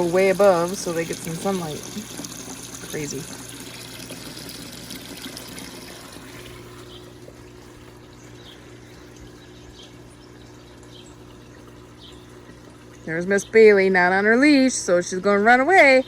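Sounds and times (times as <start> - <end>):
water trickling into pond: 0.0 - 15.0.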